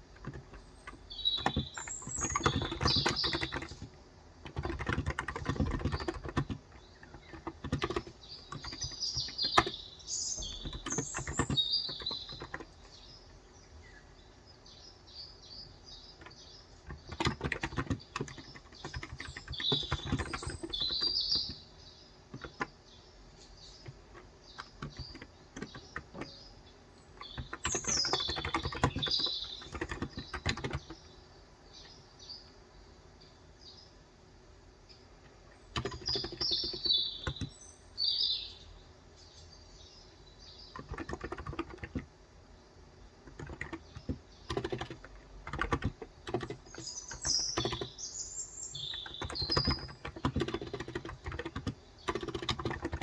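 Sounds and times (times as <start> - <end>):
keyboard typing: 0.0 - 13.1, 16.1 - 21.7, 22.3 - 22.8, 23.7 - 26.5, 27.1 - 31.1, 35.6 - 37.6, 40.6 - 42.1, 43.2 - 53.0
birds chirping: 0.0 - 53.0.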